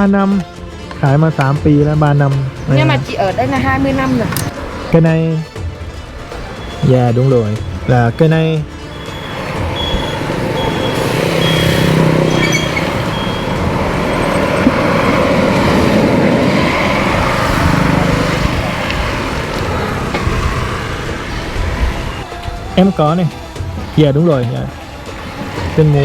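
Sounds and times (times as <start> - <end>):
road traffic: 0.0 - 26.0
heavy vehicle passing: 0.6 - 5.1, 5.9 - 22.5, 23.3 - 26.0
short high beeps: 8.9 - 13.6.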